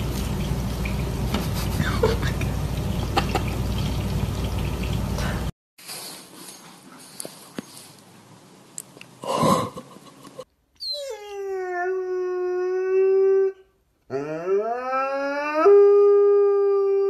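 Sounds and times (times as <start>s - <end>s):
dog howling: 10.8s - 17.0s.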